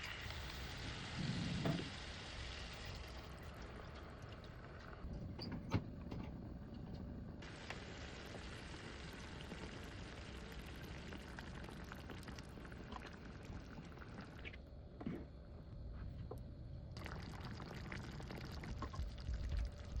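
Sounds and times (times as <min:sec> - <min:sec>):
sauce bubbling in a pan: 0:00.0 - 0:05.1, 0:06.8 - 0:14.6, 0:17.0 - 0:20.0.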